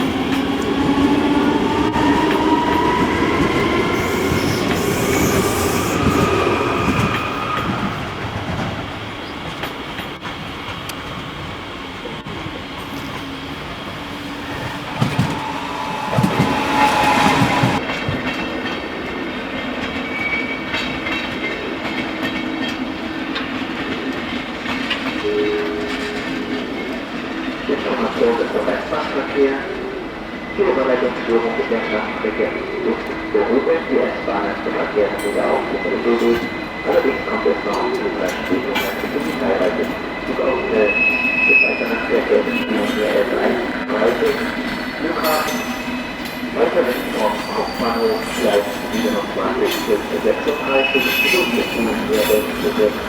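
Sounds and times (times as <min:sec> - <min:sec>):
hiss and squeal: 0:03.9 - 0:08.0, 0:14.3 - 0:17.8, 0:40.4 - 0:43.5, 0:44.2 - 0:53.0
train motor whine: 0:12.8 - 0:17.8.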